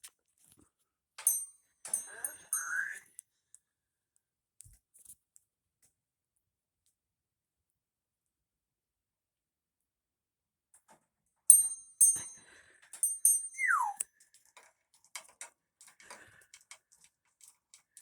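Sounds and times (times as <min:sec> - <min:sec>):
bell-like bird rings: 0:01.2 - 0:03.0, 0:11.5 - 0:14.0
bird falling whistle: 0:13.6 - 0:14.0.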